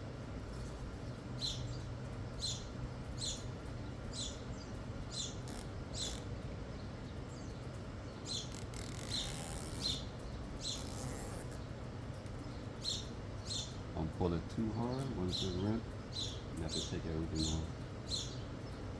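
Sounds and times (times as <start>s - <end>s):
steady low hum: 0.0s - 18.9s
small bird chirping: 0.5s - 13.8s, 14.6s - 18.9s.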